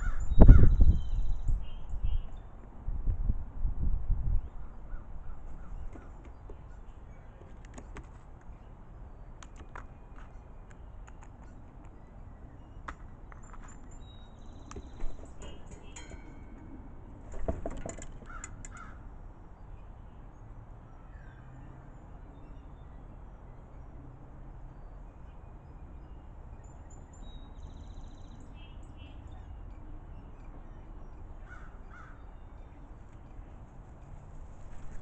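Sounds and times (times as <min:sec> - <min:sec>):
crows cawing: 0:00.0 - 0:00.7, 0:18.2 - 0:19.1, 0:31.4 - 0:32.2.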